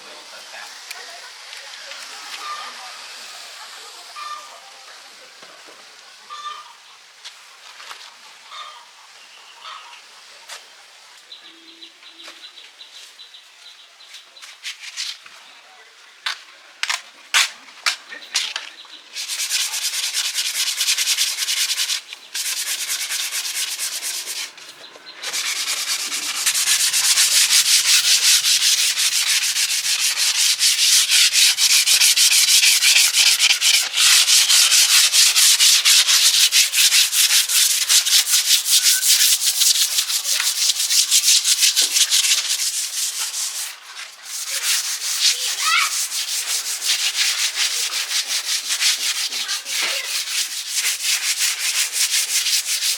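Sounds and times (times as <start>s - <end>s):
rapid sanding strokes: 19.2s - 52.9s.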